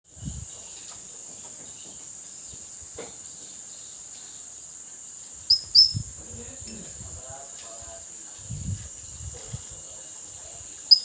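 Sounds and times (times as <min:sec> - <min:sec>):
high-pitched insect drone: 0:03.8 - 0:11.0.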